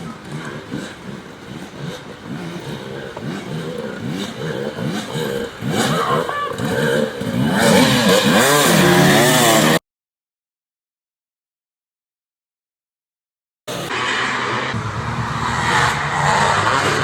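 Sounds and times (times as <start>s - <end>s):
dirt bike engines revving: 0.0s - 9.8s, 13.7s - 17.0s.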